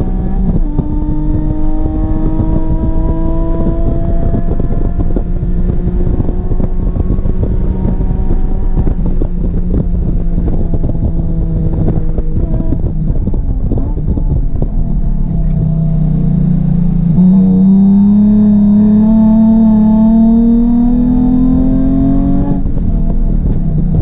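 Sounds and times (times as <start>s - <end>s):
car engine under load: 0.0s - 24.0s
road rumble: 0.0s - 24.0s
wind buffeting: 0.0s - 24.0s.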